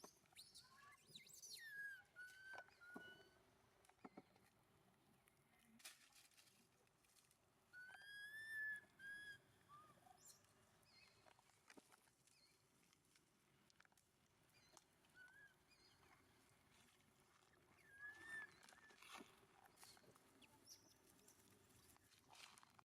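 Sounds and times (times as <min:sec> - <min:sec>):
baby monkey whistle-like calls: 0:00.4 - 0:03.3, 0:07.8 - 0:10.4, 0:17.8 - 0:18.6.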